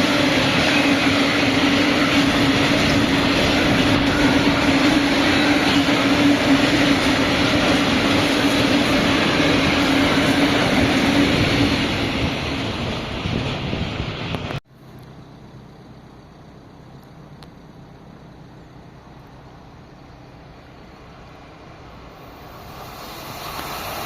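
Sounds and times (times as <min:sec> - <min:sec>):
train wheels rushing on rails: 0:00.0 - 0:14.6, 0:19.4 - 0:24.0.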